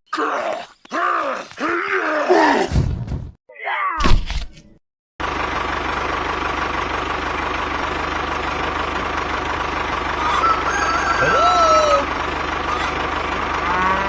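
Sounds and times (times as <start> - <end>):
diesel engine idling: 5.2 - 14.0.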